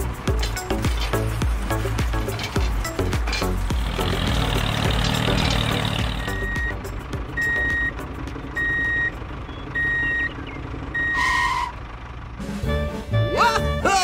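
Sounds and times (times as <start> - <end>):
low engine rumble: 0.0 - 14.0
reversing alarm beeping: 6.2 - 6.8, 7.4 - 8.0, 8.6 - 11.7.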